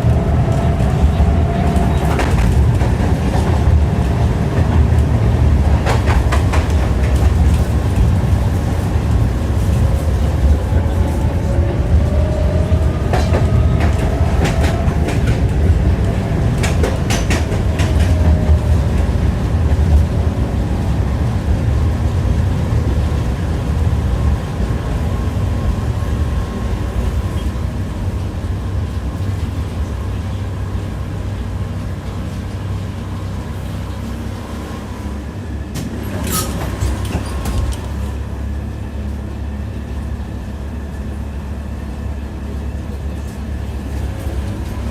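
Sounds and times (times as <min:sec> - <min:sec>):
wheels clicking over rail joints: 0:00.0 - 0:20.1, 0:35.7 - 0:40.4
tram rumbling on rails: 0:00.0 - 0:44.9.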